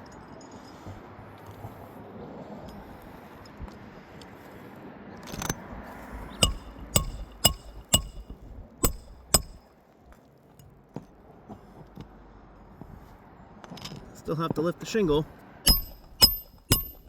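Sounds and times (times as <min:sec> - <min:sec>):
metal scrape: 0:05.3 - 0:09.6
hammer striking metal bar: 0:06.2 - 0:09.6, 0:15.7 - 0:17.0.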